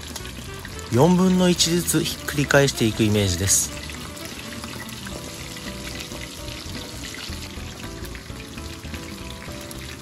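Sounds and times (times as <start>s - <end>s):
chicken sizzling in oil: 0.0s - 10.0s
quiet background music: 0.0s - 10.0s.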